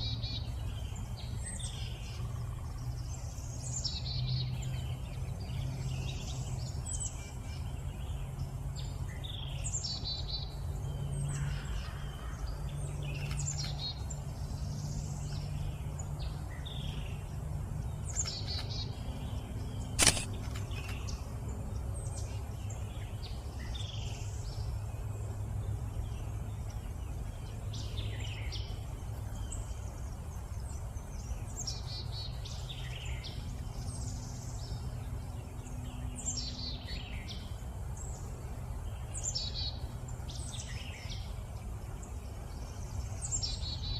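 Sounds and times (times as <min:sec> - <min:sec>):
low background rumble: 0:00.0 - 0:43.9
songbirds chirping and trilling: 0:00.0 - 0:43.9
sharp click: 0:20.0 - 0:21.1.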